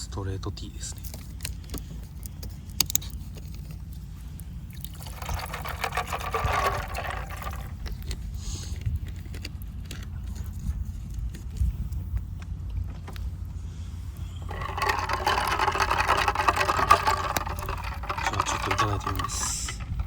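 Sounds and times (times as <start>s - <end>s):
liquid pouring into a cup: 4.8s - 7.8s.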